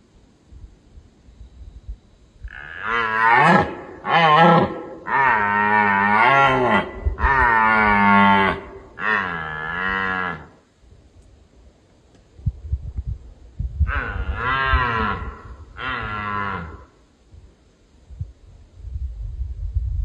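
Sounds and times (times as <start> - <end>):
red deer bellowing: 2.5 - 10.6, 13.9 - 16.9.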